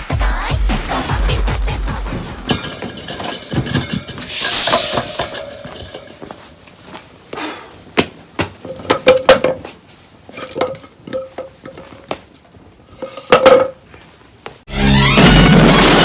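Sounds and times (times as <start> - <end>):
metal objects knocking and clinking: 2.5 - 6.5, 8.6 - 9.6, 10.4 - 12.1, 12.9 - 13.8.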